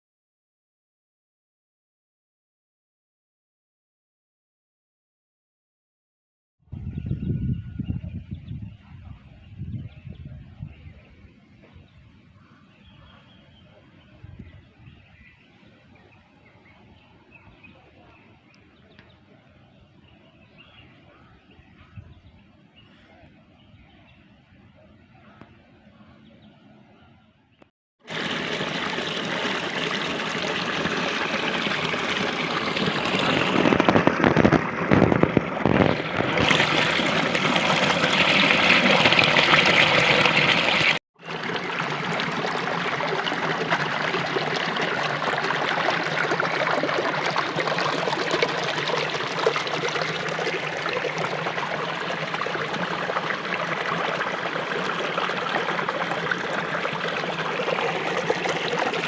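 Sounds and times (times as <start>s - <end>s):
water rushing: 28.0s - 59.0s.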